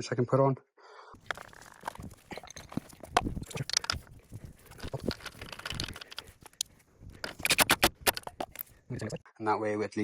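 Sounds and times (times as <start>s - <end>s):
metal clicks taps and knocks: 4.8s - 8.7s.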